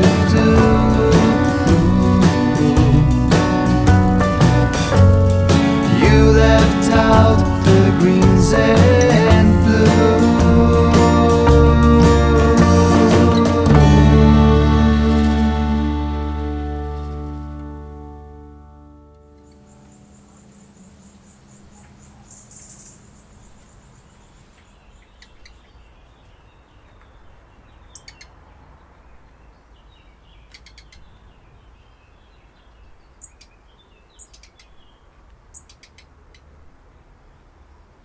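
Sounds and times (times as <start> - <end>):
birds chirping: 0.0 - 17.5, 19.4 - 38.0
low rumble: 0.0 - 18.9.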